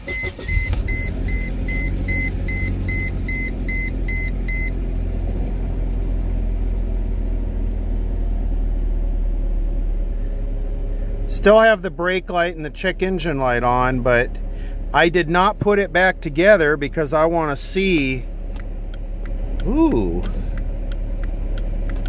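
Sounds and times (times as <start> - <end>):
dashboard warning beeper: 0.0 - 4.8
car engine starting and idling: 0.0 - 22.0.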